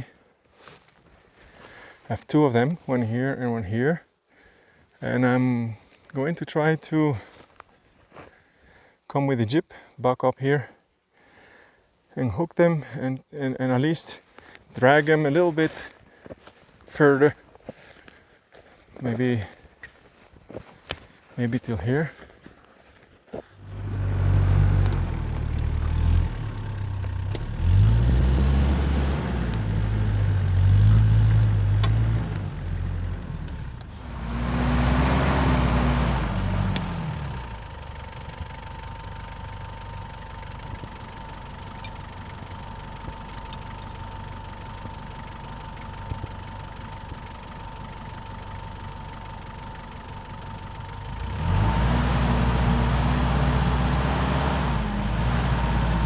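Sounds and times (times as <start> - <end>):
vehicle engine running: 21.5 - 56.0.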